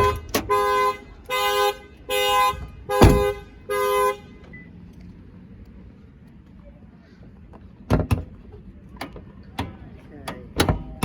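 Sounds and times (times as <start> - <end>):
two-tone car horn honks: 0.0 - 4.6
sharp thump: 3.0 - 3.4.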